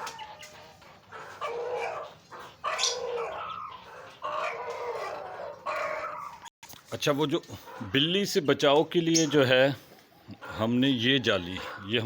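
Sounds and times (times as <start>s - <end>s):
animal calling: 0.0s - 6.5s.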